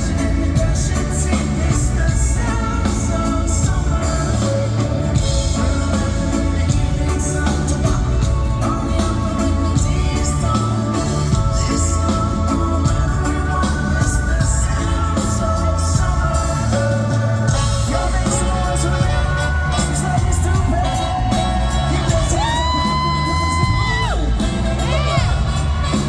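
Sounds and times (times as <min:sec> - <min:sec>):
live reggae band with vocals: 0:00.0 - 0:26.0.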